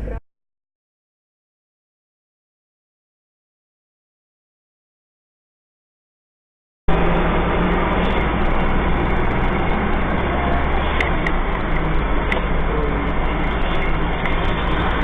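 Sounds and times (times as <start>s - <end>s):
vehicle engine and road noise: 6.9s - 15.0s.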